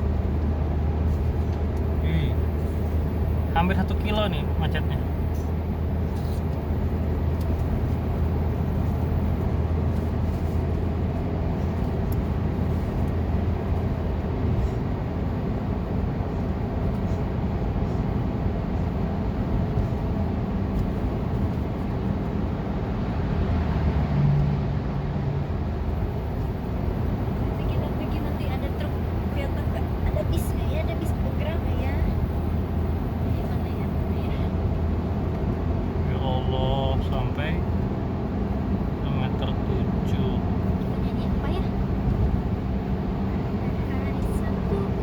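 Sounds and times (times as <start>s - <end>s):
car engine rumble: 0.0s - 45.0s
road noise: 0.0s - 45.0s.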